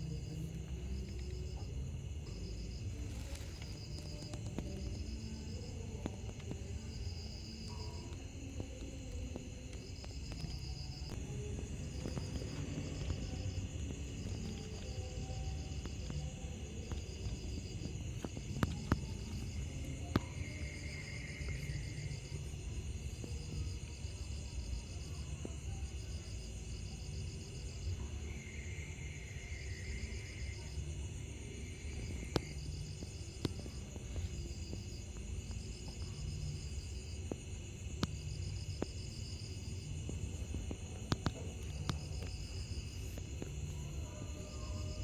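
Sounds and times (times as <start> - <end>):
steady low rumble: 0.0 - 24.5
lower insect chirp: 0.0 - 45.0
night insects chirping: 0.0 - 45.0.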